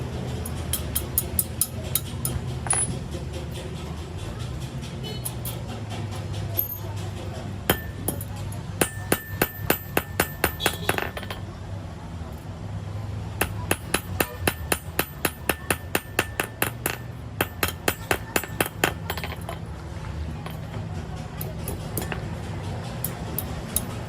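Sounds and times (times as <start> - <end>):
hammer striking metal: 0.4 - 3.2, 7.7 - 11.5, 13.4 - 19.6, 21.4 - 24.0
metallic ring: 2.6 - 3.0.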